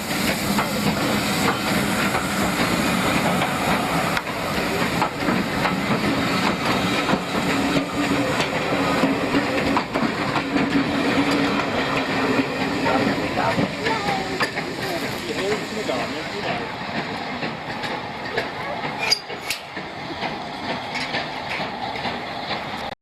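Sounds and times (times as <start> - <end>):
steam hiss: 0.0 - 22.9
train wheels clattering on rails: 0.0 - 23.0.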